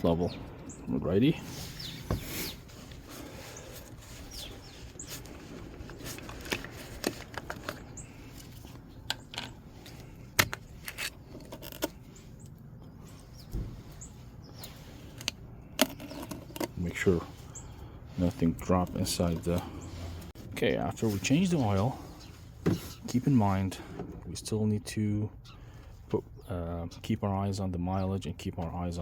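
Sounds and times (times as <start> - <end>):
light clicks and knocks of handling: 1.8 - 17.6.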